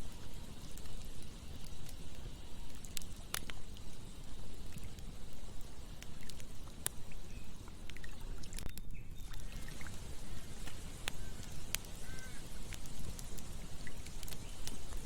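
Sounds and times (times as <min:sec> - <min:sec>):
campfire crackling: 0:00.0 - 0:15.0
sharp pops of fire: 0:00.0 - 0:15.0
running water rushing: 0:09.2 - 0:15.0.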